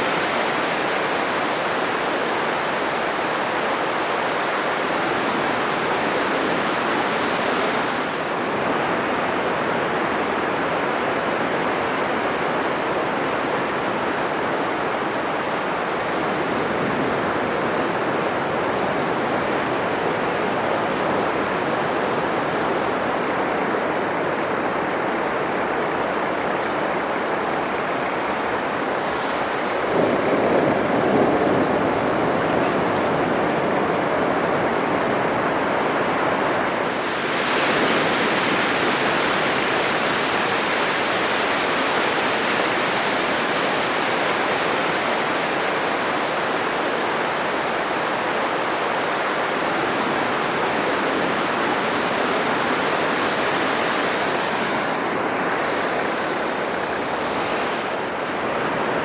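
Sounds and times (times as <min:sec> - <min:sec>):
surf breaking on a beach: 0:00.0 - 0:59.0
wave crashing: 0:15.8 - 0:59.0.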